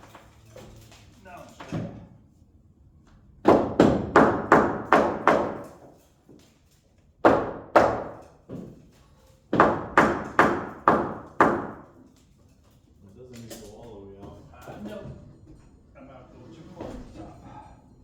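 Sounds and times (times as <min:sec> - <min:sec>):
hammer blows on wood framing: 0:03.4 - 0:05.9, 0:07.2 - 0:08.8, 0:09.5 - 0:12.0.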